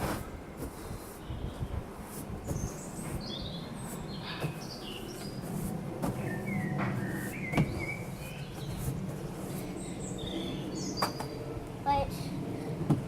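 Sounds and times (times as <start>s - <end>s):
distant airliner rumble: 0.2s - 13.0s
small birds chirping: 2.4s - 12.1s.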